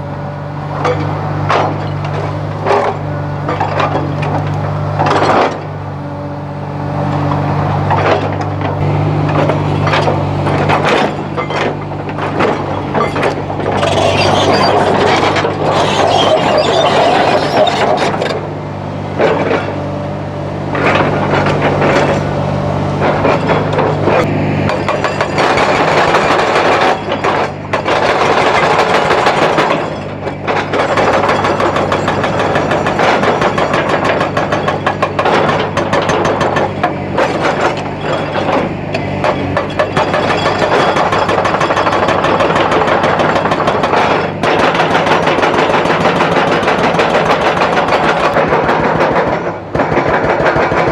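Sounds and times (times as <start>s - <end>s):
excavator diesel engine: 0.0s - 50.9s
stone scraping steel bucket: 7.2s - 18.4s.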